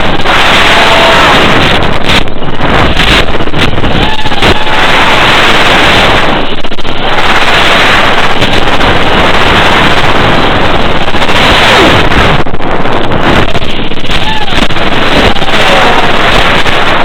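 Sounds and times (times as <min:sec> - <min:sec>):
distorted wind rush: 0:00.0 - 0:17.0
drone propeller noise: 0:00.0 - 0:17.0.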